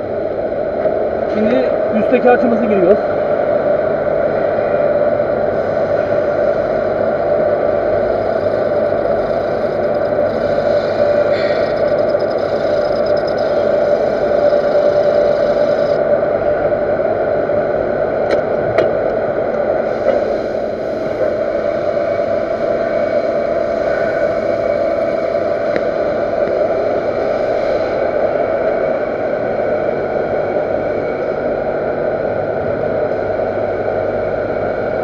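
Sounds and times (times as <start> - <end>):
metal lathe cutting: 5.9 - 16.0.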